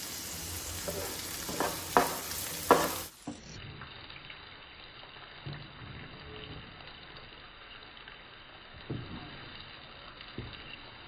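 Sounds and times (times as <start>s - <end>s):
vegetables sizzling in oil: 0.0s - 11.0s
wooden spoon knocking on pan: 0.8s - 3.1s.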